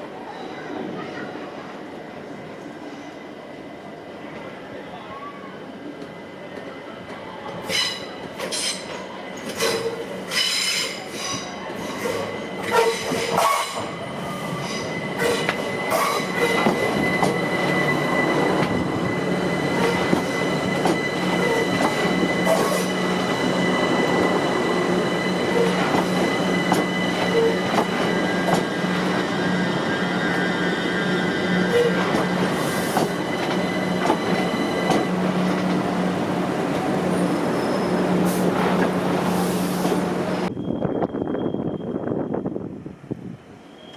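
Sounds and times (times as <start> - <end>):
train whine and rumble: 0.0 - 43.9
train wheels squealing: 7.6 - 35.2, 37.1 - 42.6, 43.6 - 43.9.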